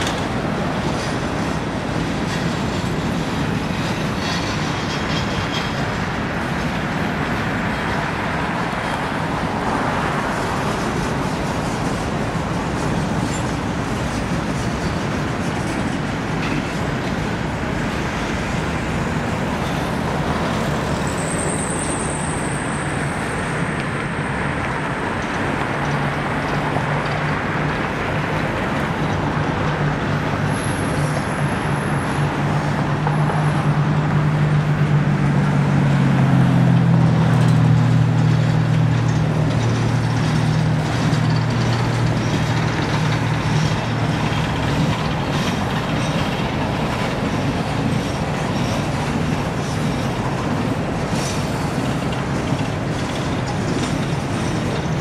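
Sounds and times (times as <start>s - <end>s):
freight train wheels rumbling: 0.0s - 55.0s
high wheel squeal: 2.3s - 6.7s, 12.8s - 25.9s, 30.2s - 34.0s, 37.4s - 55.0s.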